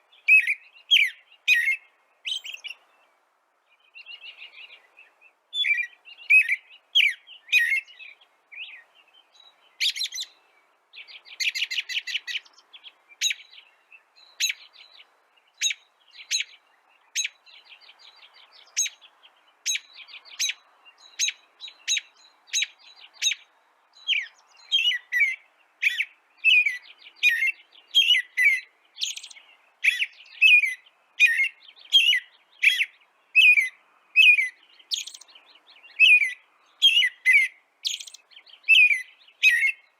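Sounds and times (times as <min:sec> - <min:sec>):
songbirds chirping: 0:00.0 - 0:39.9
buzzy bird trill: 0:26.7 - 0:30.7, 0:34.3 - 0:35.3, 0:36.9 - 0:38.2.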